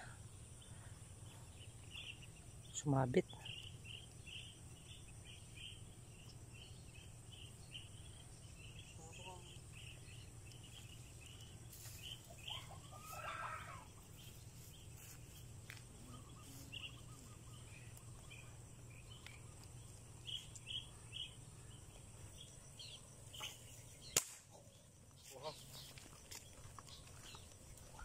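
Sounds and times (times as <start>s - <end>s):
low steady hum: 0.0s - 28.0s
small birds chirping: 0.0s - 28.0s
air rifle shot: 24.0s - 24.5s.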